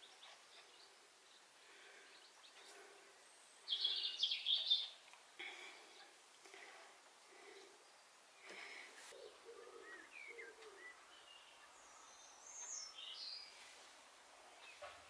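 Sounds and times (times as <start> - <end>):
songbird singing: 0.0 - 6.7, 7.3 - 13.7, 14.5 - 15.0
faint background chirping: 0.0 - 15.0.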